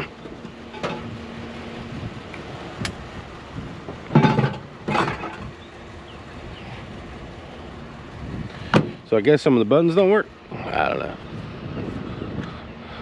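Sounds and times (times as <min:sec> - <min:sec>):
loud clunks: 0:08.7 - 0:09.0.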